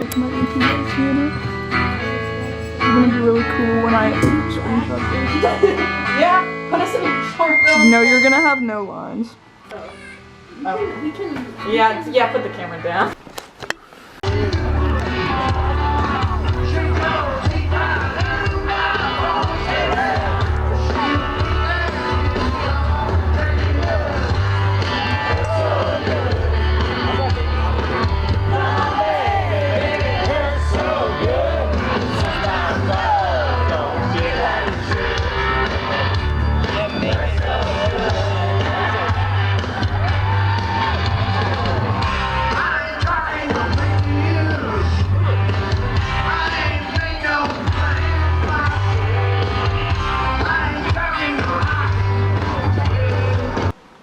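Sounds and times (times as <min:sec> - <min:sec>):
rock band playing: 0:01.4 - 0:08.8, 0:14.2 - 0:53.8
bass line: 0:07.2 - 0:08.9, 0:14.2 - 0:53.7.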